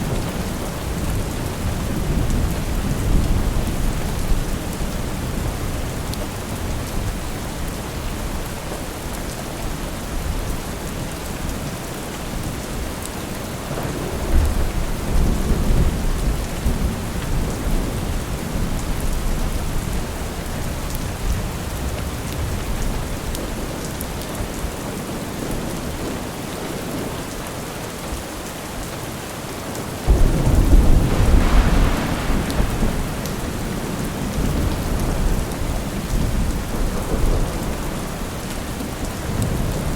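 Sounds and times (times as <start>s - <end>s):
steady rain: 0.0s - 39.9s
thunder rumbling: 30.0s - 39.9s.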